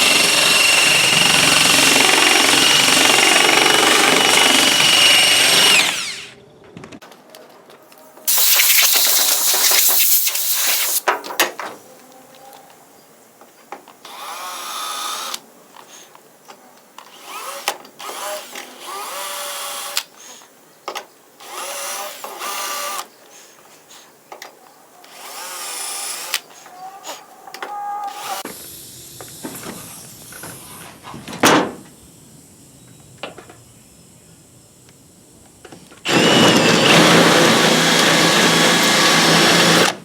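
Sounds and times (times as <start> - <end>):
electric drill on sheet metal: 0.0 - 6.4, 8.3 - 11.0, 17.1 - 20.1, 21.4 - 23.1, 25.1 - 26.5, 28.1 - 30.9, 36.1 - 40.0.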